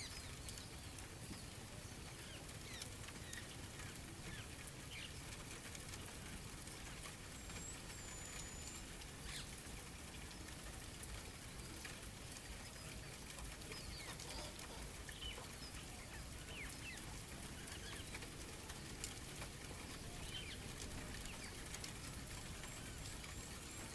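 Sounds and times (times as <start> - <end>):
bird chirps: 7.4 - 9.5.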